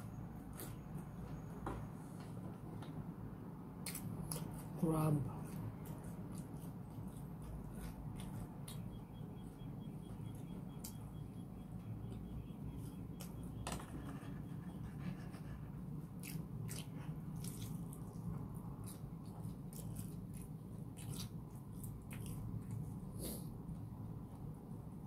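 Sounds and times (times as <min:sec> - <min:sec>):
chewing with wet mouth clicks: 0:03.8 - 0:04.7, 0:05.4 - 0:13.5, 0:16.1 - 0:23.1.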